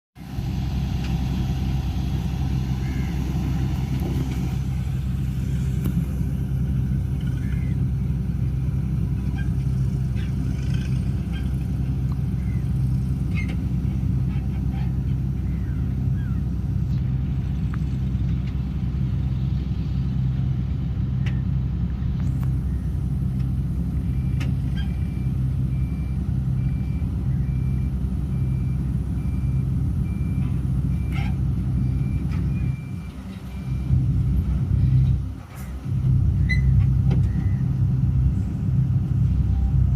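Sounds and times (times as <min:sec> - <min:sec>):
diesel engine running: 0:00.1 - 0:39.9
reversing alarm beeping: 0:24.0 - 0:35.0.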